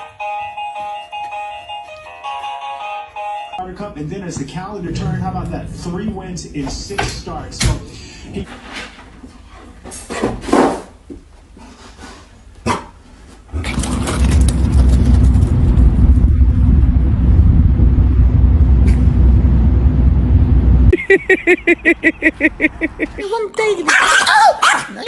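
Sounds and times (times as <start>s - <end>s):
loud low rumble: 3.6s - 8.5s, 13.7s - 21.0s
dog yapping: 23.8s - 25.0s.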